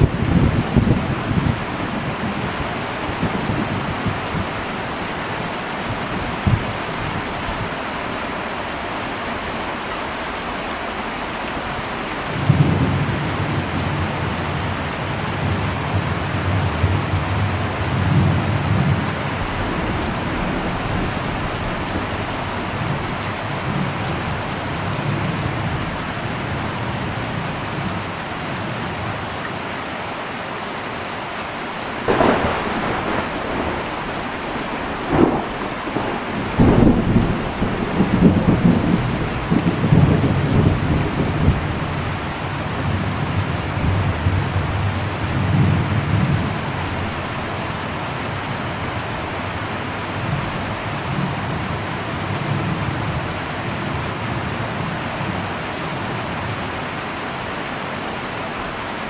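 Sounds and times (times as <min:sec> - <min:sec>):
thunder rumbling: 0:00.0 - 0:07.8, 0:11.9 - 0:27.8, 0:31.8 - 0:49.5
heavy rain on a metal roof: 0:00.0 - 0:59.0.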